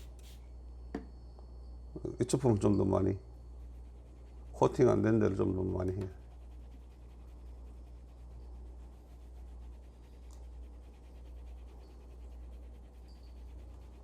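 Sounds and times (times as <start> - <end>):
steady low hum: 0.0 - 14.0
towel rubbing on leather: 3.7 - 14.0.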